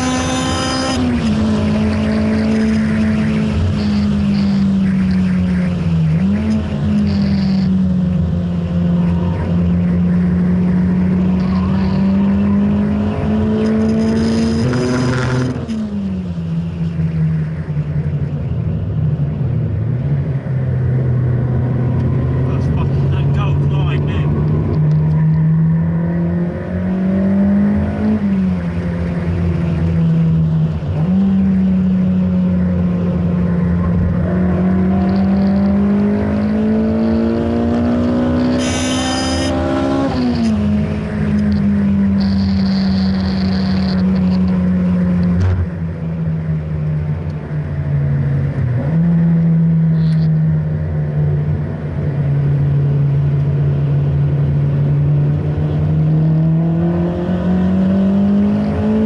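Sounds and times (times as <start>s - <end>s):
car engine revving from cabin: 34.2s - 40.6s.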